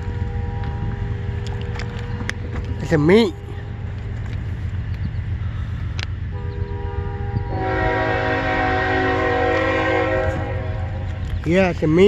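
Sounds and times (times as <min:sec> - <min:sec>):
locomotive air horn blast: 0:00.0 - 0:01.6, 0:06.3 - 0:11.2
steady low rumble: 0:00.0 - 0:12.0.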